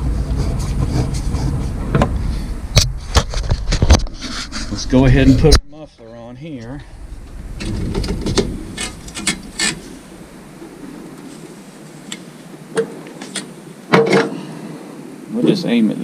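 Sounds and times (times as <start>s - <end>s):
metal clicks and clanks: 7.6s - 9.8s.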